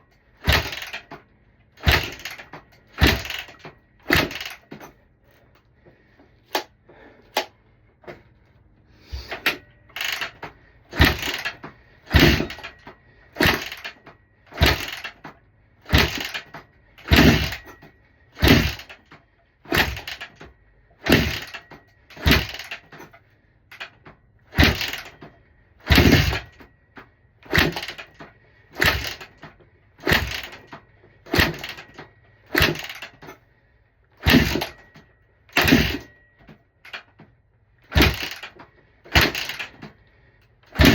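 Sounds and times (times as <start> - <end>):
dirt bike engine turning over: 0.3 - 5.0, 9.1 - 19.1, 19.7 - 26.7, 27.4 - 33.4, 34.1 - 36.2, 37.8 - 40.0, 40.6 - 40.9.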